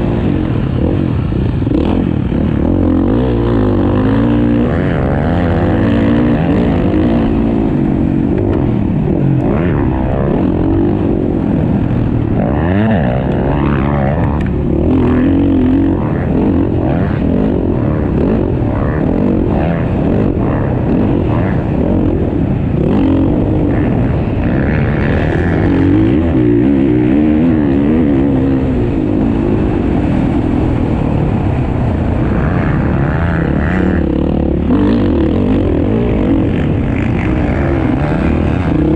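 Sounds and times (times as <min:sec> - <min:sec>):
dirt bike engines revving: 0:00.0 - 0:38.9.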